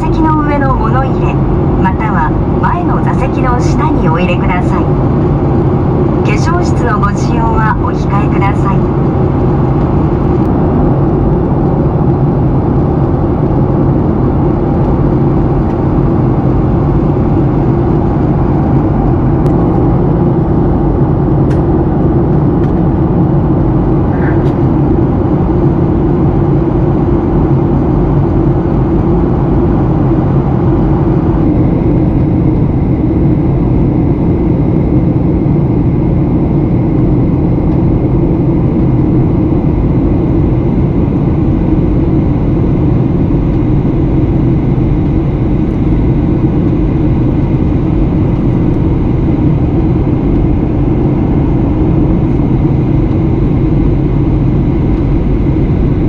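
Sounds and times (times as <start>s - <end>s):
airliner cabin engine drone: 0.0s - 56.0s.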